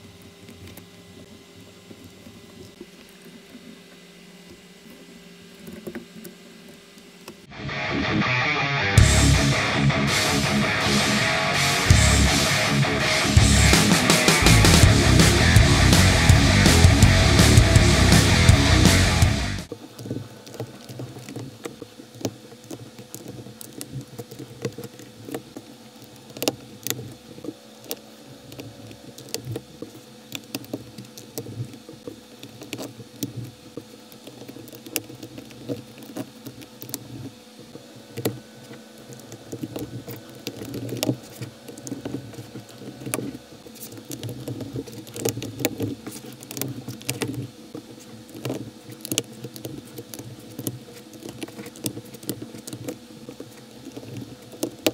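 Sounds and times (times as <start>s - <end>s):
handling noise: 9.0s - 54.9s.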